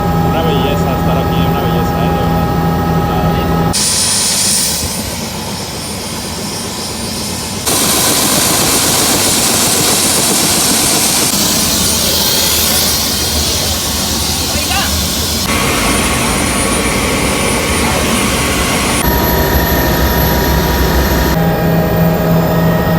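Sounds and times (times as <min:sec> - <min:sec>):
helicopter engine and rotor noise: 0:00.0 - 0:22.9
thin high whine: 0:00.0 - 0:22.9.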